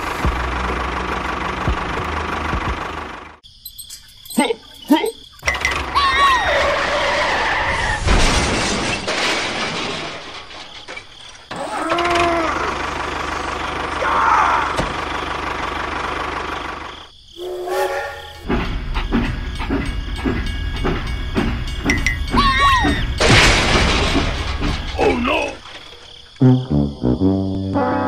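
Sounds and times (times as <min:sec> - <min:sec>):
vehicle engine: 0:00.0 - 0:03.4, 0:05.4 - 0:07.0, 0:10.1 - 0:17.2, 0:18.2 - 0:27.6
rhythmic knocking: 0:18.4 - 0:23.2.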